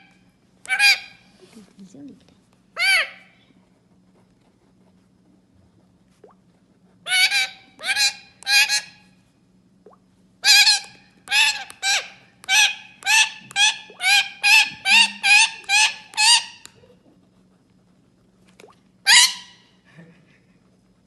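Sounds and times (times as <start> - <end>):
parrot squawking: 0.6 - 1.2, 2.8 - 3.4, 7.1 - 9.0, 10.4 - 16.7, 19.0 - 19.6.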